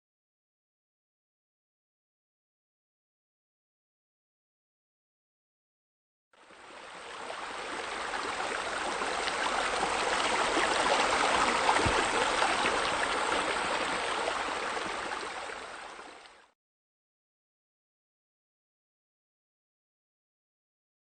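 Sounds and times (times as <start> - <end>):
waterfall splashing into pool: 9.0 - 15.3.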